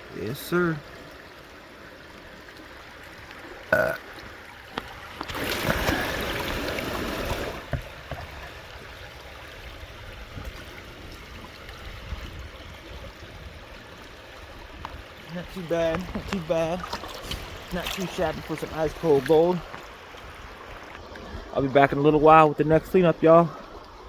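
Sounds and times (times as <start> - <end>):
creek water running: 0.0 - 24.0
throaty vocal sound: 3.7 - 4.1.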